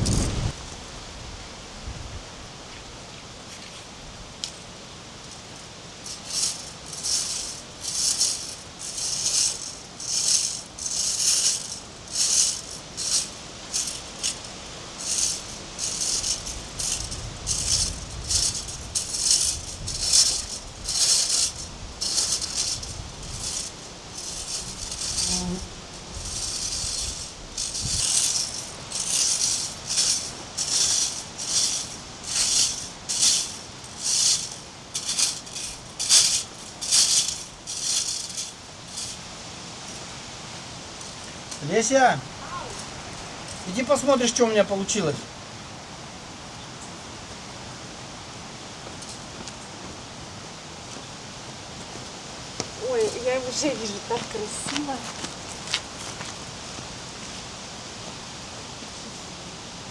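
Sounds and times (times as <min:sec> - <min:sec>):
hand tool scraping: 0:06.1 - 0:39.3.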